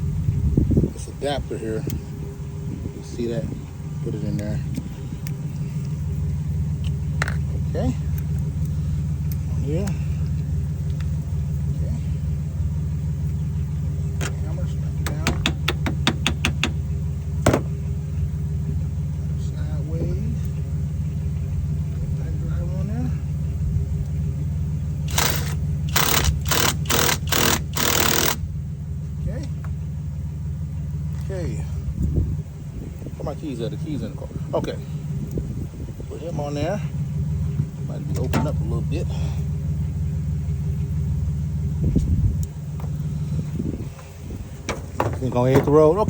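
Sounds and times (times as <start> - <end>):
steady low engine-like hum: 0.0 - 46.0
light knocks: 17.4 - 17.8
impact driver bursts: 25.0 - 28.4.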